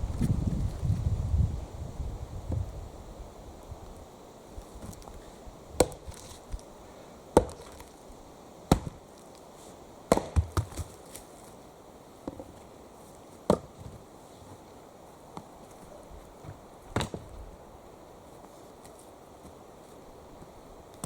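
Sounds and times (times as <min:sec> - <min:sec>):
axe chopping wood: 0:05.8 - 0:06.2, 0:07.3 - 0:07.9, 0:08.7 - 0:09.0, 0:10.1 - 0:11.0, 0:13.5 - 0:13.7, 0:16.9 - 0:17.3.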